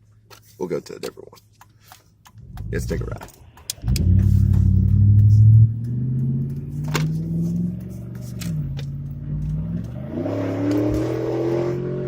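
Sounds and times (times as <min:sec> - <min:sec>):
pickup truck engine accelerating: 0:02.4 - 0:12.0.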